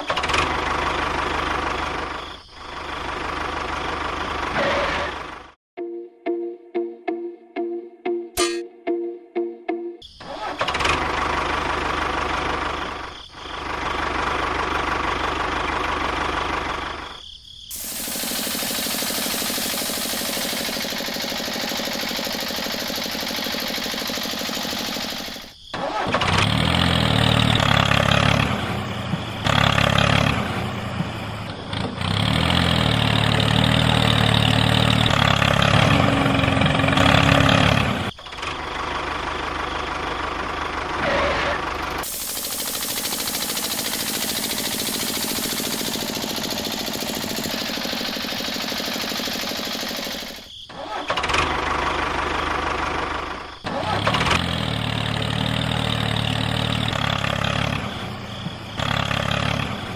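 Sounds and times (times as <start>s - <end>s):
engine drone: 0.0s - 5.6s, 10.2s - 59.9s
steady hiss: 17.7s - 20.4s, 42.0s - 45.9s.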